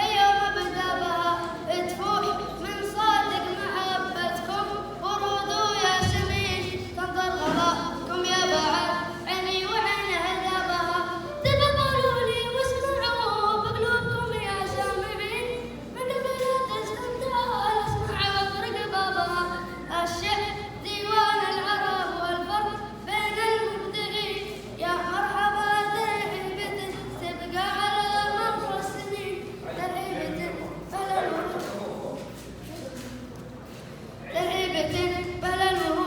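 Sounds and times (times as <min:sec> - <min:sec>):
boy singing unaccompanied chant: 0:00.0 - 0:32.3, 0:34.2 - 0:36.0.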